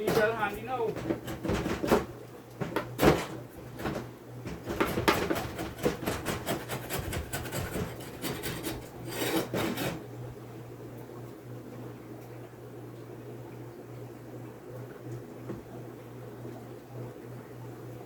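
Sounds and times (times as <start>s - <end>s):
wooden parts scraping together: 3.2s - 10.0s.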